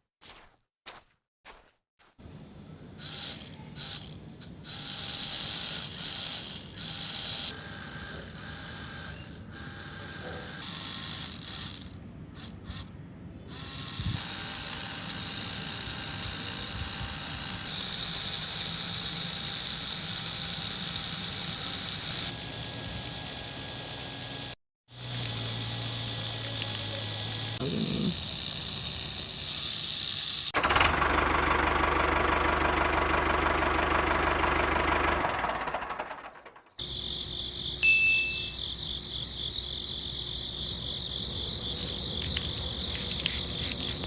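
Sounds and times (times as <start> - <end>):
small electric motor whirring: 3.0 - 30.6, 38.5 - 44.0.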